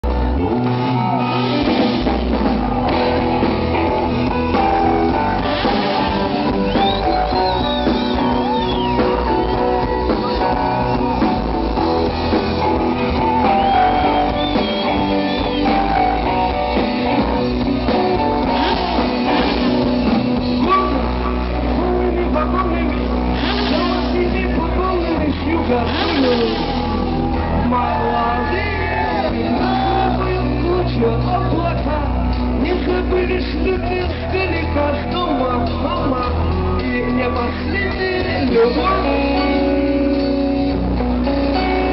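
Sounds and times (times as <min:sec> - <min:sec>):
lead guitar bending high: 0:00.0 - 0:32.6
bass guitar: 0:00.0 - 0:41.9
drum kit: 0:00.0 - 0:41.9
electric guitars: 0:00.0 - 0:41.9.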